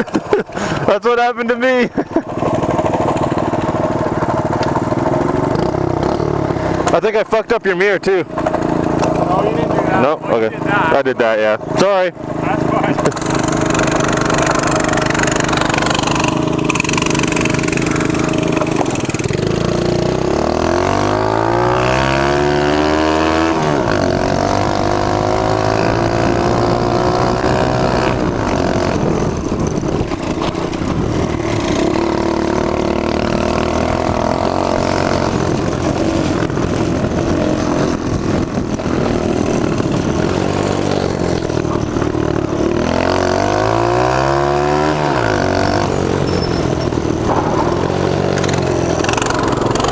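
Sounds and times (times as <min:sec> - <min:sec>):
mini bike engine revving: 0:01.6 - 0:49.9.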